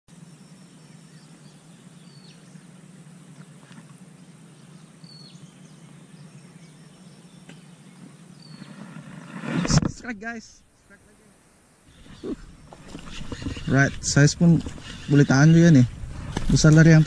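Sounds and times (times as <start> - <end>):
low background hum: 0.1 - 8.5.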